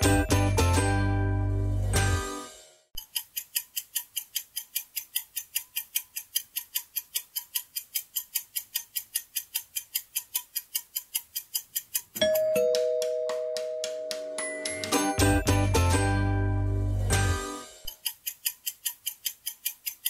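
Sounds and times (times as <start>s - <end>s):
clock ticking: 3.0s - 16.3s, 17.2s - 20.0s
bright ringing chime: 12.2s - 15.4s.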